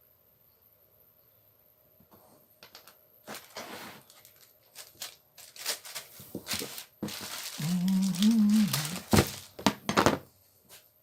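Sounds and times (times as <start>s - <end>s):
small parts clicking and rustling: 2.6s - 10.0s.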